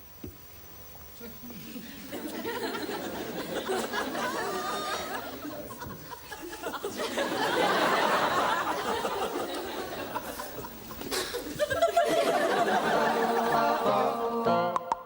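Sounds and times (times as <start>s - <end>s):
studio audience laughing: 1.7s - 14.0s
music with held notes: 13.0s - 15.0s.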